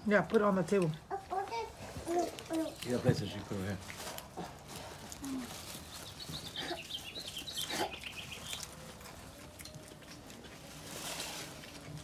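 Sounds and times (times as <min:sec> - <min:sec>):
bird chirping: 0:05.8 - 0:08.8.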